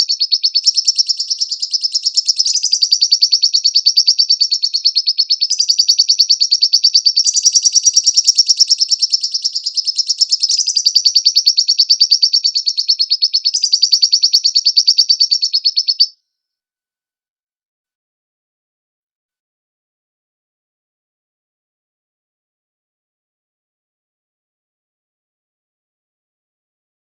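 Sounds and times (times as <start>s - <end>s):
bird trilling chirps: 0.0s - 16.2s.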